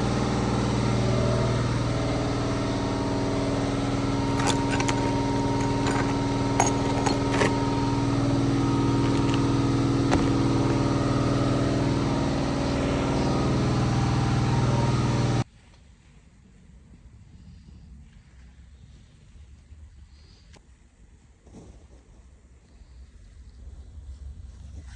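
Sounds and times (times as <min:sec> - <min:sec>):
machine humming: 0:00.0 - 0:15.5.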